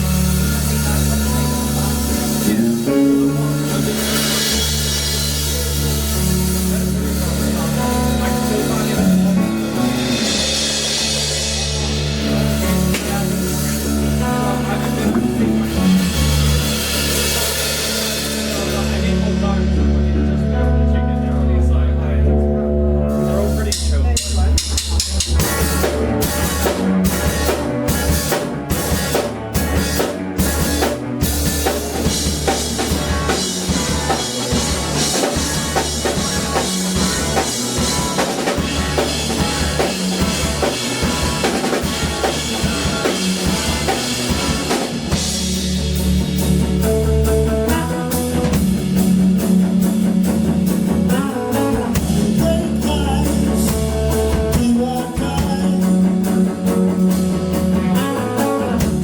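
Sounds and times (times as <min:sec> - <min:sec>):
drum hits: 0:00.0 - 0:20.2, 0:23.7 - 0:47.0
live band music: 0:00.0 - 0:59.0.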